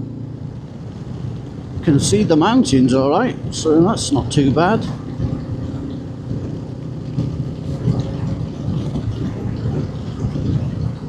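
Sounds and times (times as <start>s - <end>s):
motorcycle engine cruising: 0.0s - 11.0s
road noise: 0.0s - 11.0s
wind noise: 0.0s - 11.0s.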